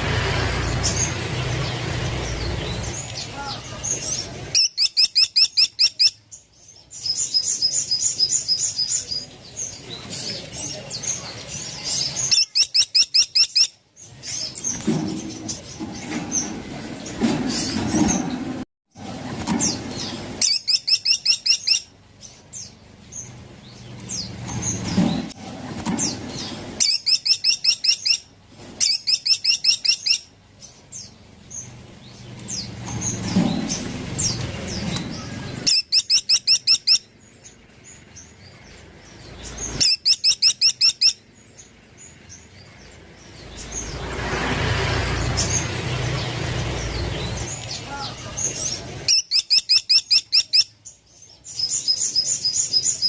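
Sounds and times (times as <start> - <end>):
rushing noise: 0.0 - 4.5, 43.2 - 49.1
thin bird chirps: 0.8 - 17.8, 19.5 - 25.3, 25.9 - 44.1, 45.2 - 53.0
woodpecker calling high notes: 12.3 - 13.8, 35.7 - 37.1, 39.8 - 41.2.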